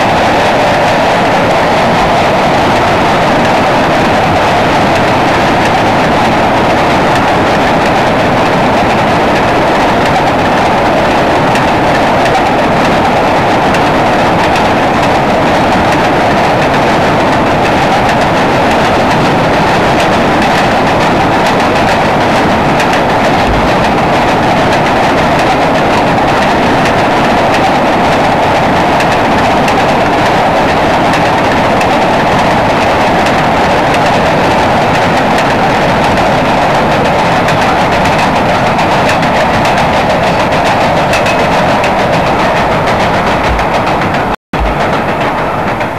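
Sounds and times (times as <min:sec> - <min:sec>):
freight train wheels rumbling: 0:00.0 - 0:45.9.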